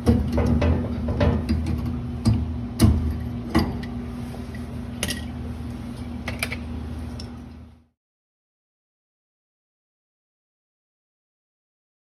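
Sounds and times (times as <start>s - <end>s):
metal clicks and knocks on pipe: 0.0s - 3.8s
steady low hum: 0.0s - 8.0s.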